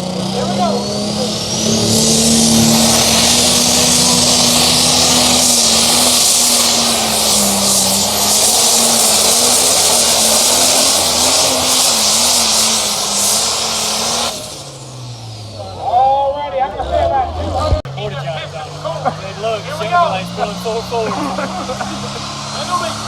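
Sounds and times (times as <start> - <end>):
tractor engine at full throttle: 0.0 - 23.0.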